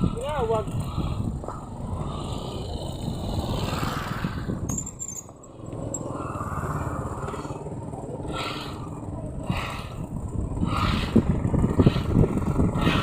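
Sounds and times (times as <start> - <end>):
wind rush: 0.0 - 5.0, 8.6 - 13.0
motorcycle engine running: 5.4 - 13.0.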